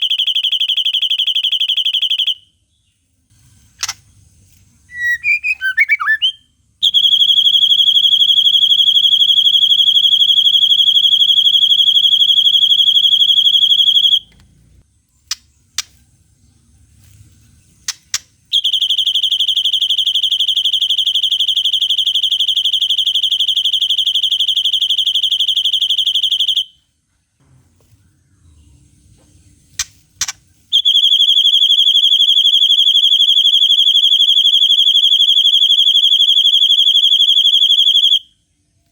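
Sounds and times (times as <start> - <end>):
songbird singing fast trills: 4.9 - 6.4
bird chirps: 4.9 - 7.0.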